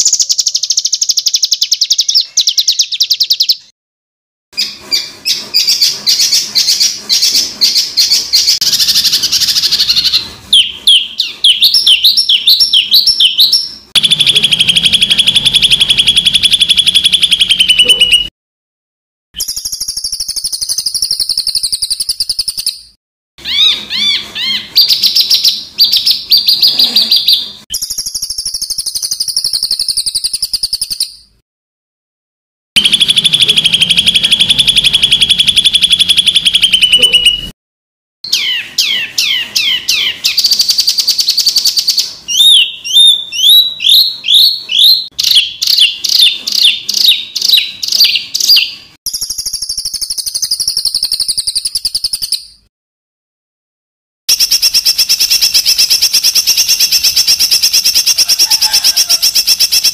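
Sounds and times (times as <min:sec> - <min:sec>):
songbird song: 0:00.0 - 0:03.7.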